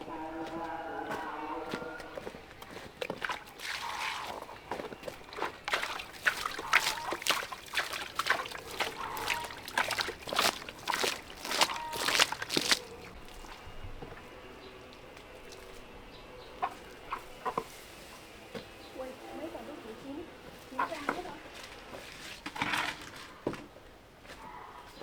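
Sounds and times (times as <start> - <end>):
splashing in water and mud: 1.7 - 13.8, 15.2 - 15.8, 20.8 - 23.5.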